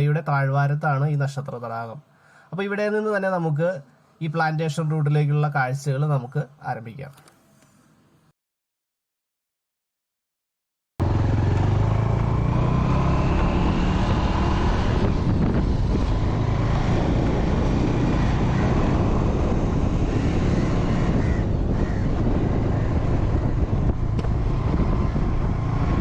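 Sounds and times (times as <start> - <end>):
motorcycle engine running: 11.0 - 26.0
wind and road noise: 11.0 - 26.0.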